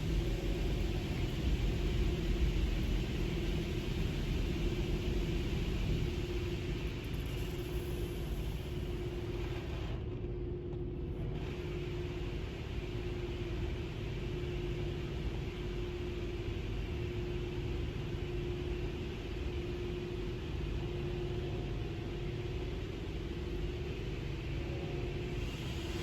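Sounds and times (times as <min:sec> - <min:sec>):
low rumble: 0:00.0 - 0:10.2
constant hum: 0:00.0 - 0:26.0.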